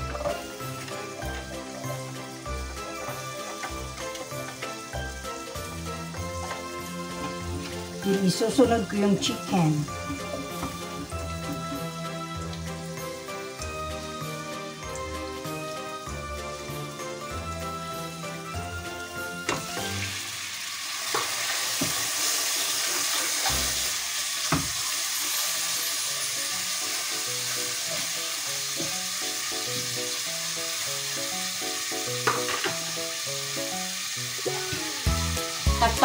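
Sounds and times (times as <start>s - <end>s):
chicken sizzling in a pot: 0.0s - 36.0s.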